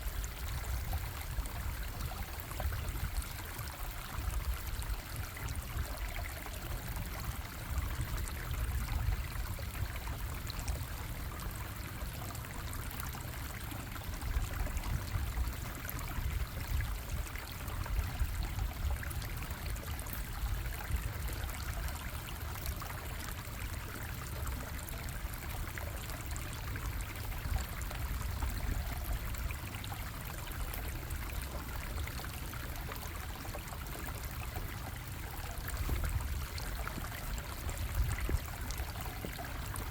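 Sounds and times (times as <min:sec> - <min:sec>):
water splashing over rocks: 0:21.6 - 0:39.9.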